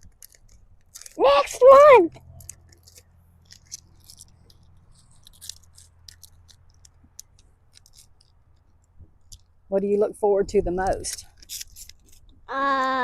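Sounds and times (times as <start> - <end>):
plastic sheet crinkling: 0.0 - 6.9, 11.0 - 12.3.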